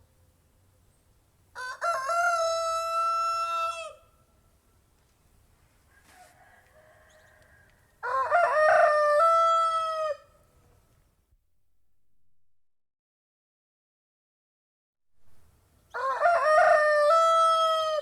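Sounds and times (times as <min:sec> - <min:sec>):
rooster crowing: 0:01.6 - 0:04.1, 0:05.9 - 0:10.4, 0:15.9 - 0:18.0.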